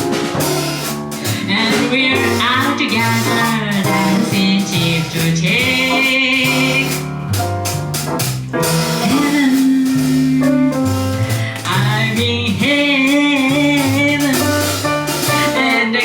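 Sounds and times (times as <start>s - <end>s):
cymbals: 0.0s - 11.6s
bass line: 0.0s - 16.0s
jazz combo playing: 0.0s - 16.0s.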